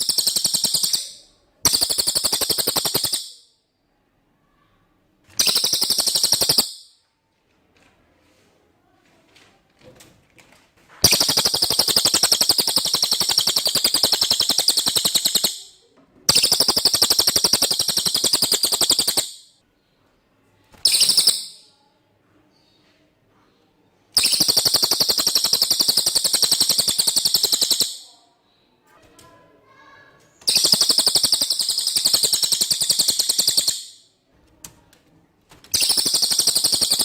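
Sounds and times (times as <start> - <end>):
bird song trills: 0.0 - 3.6, 5.4 - 7.0, 11.0 - 19.6, 20.8 - 21.9, 24.1 - 28.7, 30.4 - 34.1, 35.7 - 37.0.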